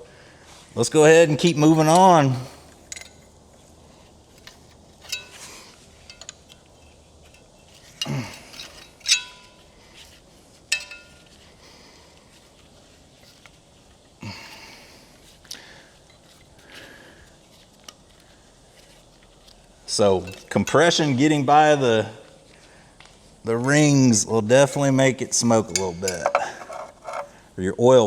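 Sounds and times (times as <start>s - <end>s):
metal hand tools clinking: 2.8s - 3.4s, 4.4s - 10.1s, 10.7s - 11.6s, 20.0s - 20.8s, 25.4s - 27.4s.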